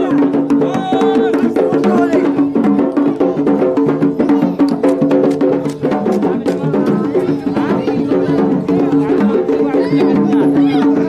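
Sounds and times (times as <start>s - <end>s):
drums beating fast rhythm: 0.0s - 11.0s.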